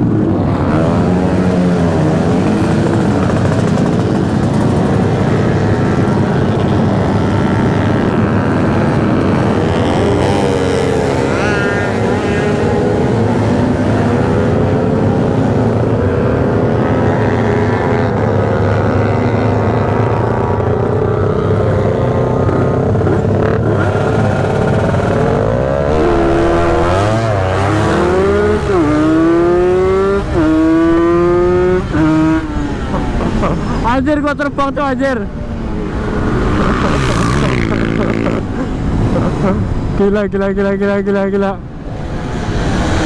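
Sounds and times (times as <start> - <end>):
motorcycle accelerating through gears: 0.0 - 33.8, 35.6 - 39.8
motorcycle engines revving: 0.0 - 43.0.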